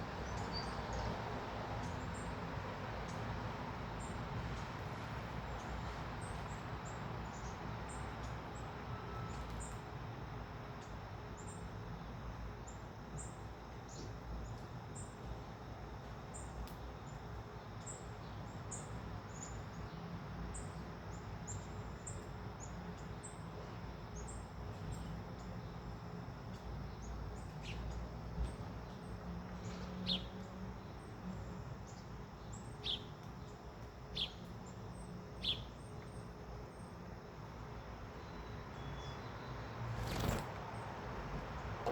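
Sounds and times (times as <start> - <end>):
small birds chirping: 26.5 - 37.0, 38.2 - 41.0.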